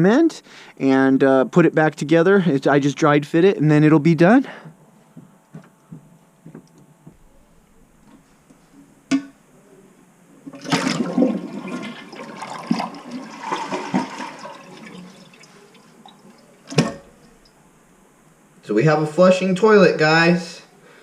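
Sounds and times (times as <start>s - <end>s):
toilet water rushing: 10.4s - 17.2s.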